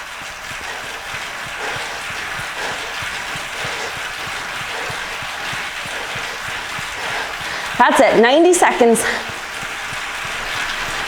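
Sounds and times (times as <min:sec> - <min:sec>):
bike trainer rushing hiss: 0:00.0 - 0:11.0
soft low thumps of pedalling: 0:00.0 - 0:11.0.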